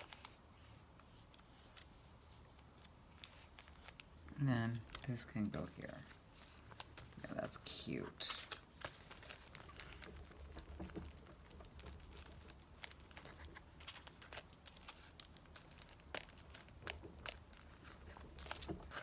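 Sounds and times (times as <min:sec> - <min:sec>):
low steady hum: 0:00.0 - 0:19.0
paper rustling: 0:00.0 - 0:19.0.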